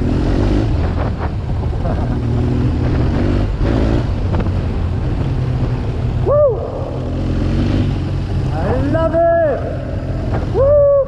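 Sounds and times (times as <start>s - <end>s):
motorcycle engine running: 0.0s - 10.8s
person whooping: 6.2s - 7.0s, 10.5s - 11.0s.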